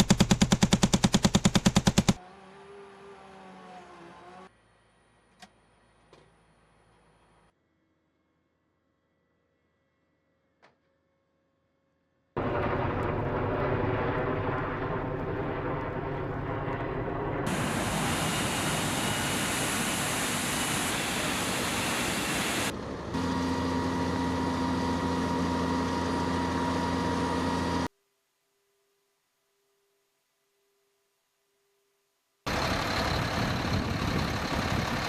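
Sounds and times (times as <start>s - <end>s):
helicopter turbine and rotor: 0.0s - 2.2s, 12.4s - 27.9s, 32.5s - 35.0s
wide hiss: 17.5s - 22.7s.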